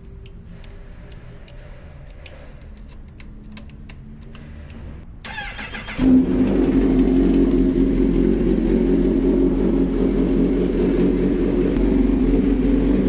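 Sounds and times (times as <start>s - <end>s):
low steady rumble: 6.0s - 13.0s.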